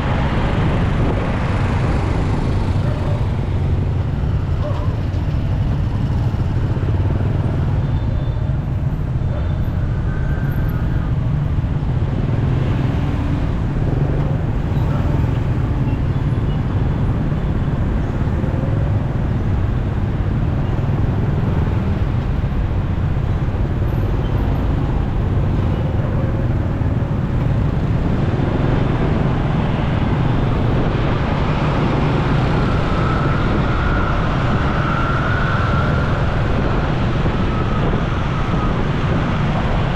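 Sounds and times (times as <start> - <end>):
motorcycle engine and road noise: 0.0 - 39.9
other vehicles: 0.0 - 39.9
wavering siren: 32.5 - 38.9.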